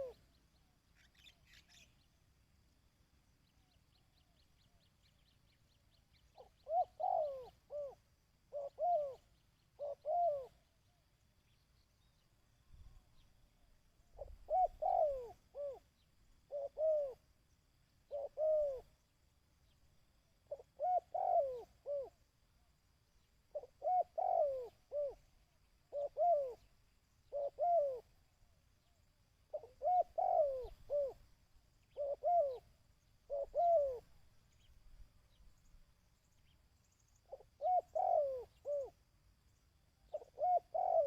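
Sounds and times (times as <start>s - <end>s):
dove cooing: 0.0s - 0.3s, 6.1s - 10.7s, 14.1s - 17.2s, 18.1s - 18.9s, 20.5s - 22.2s, 23.5s - 25.3s, 25.9s - 28.2s, 29.5s - 34.1s, 37.3s - 39.0s, 40.1s - 41.0s.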